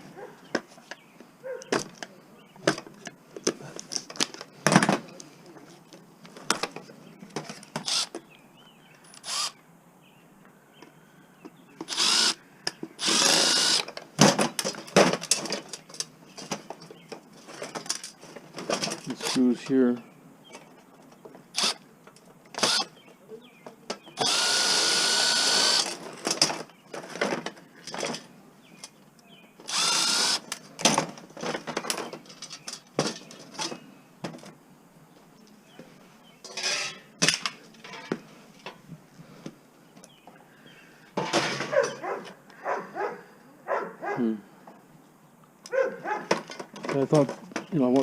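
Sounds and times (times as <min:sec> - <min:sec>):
power drill whining: 0:07.8 - 0:08.2, 0:09.1 - 0:09.6, 0:11.9 - 0:12.4, 0:13.0 - 0:13.9, 0:21.6 - 0:21.8, 0:22.6 - 0:22.9, 0:24.2 - 0:26.0, 0:29.7 - 0:30.4.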